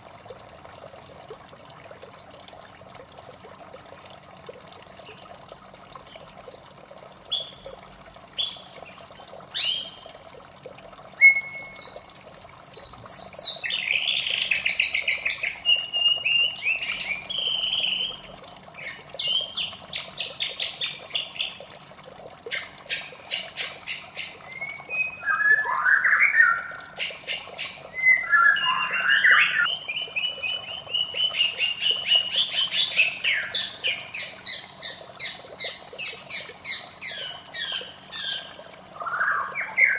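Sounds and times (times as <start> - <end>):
running water trickling: 0.0 - 39.9
bird singing with trills: 11.2 - 12.0, 12.6 - 18.2, 18.8 - 21.5, 23.9 - 34.6, 35.2 - 39.9.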